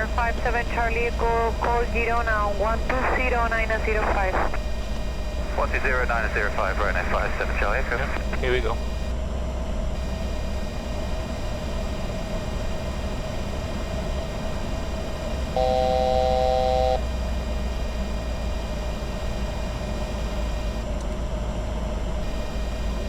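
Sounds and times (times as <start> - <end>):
cockpit airflow and engine rumble: 0.0 - 23.0
faint whine: 0.0 - 23.0
electronic multi-pitch tone: 15.4 - 18.5.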